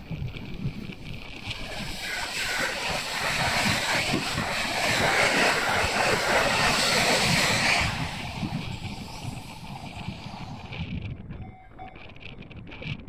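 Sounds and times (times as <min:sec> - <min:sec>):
train rushing past: 0:01.4 - 0:10.8.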